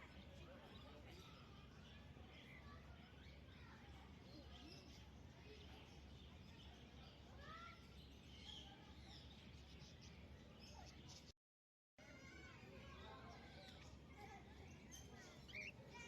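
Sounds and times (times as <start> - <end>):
parrots chirping and whistling: 15.4 - 15.8.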